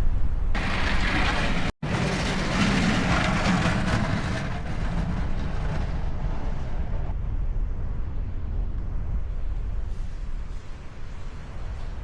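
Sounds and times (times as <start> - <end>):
truck engine rumbling: 0.6 - 7.1.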